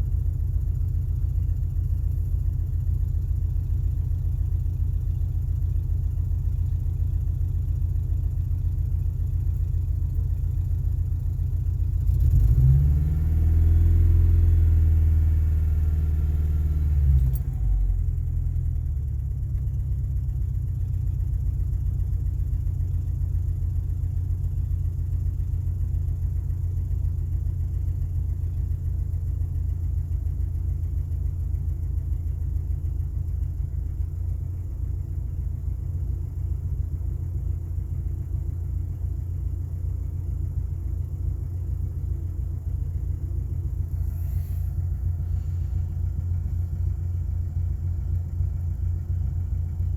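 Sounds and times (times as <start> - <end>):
engine idling roughly: 0.0 - 49.9
engine revving: 12.1 - 15.2.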